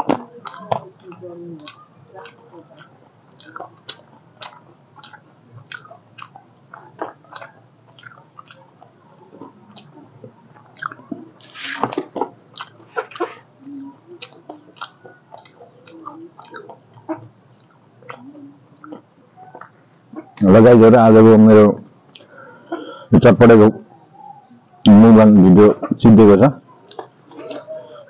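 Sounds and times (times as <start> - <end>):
man chewing: 0.0 - 20.4, 22.0 - 23.0, 26.7 - 28.0
lip smacks and mouth clicks: 0.0 - 20.5, 22.1 - 22.3, 26.8 - 27.7.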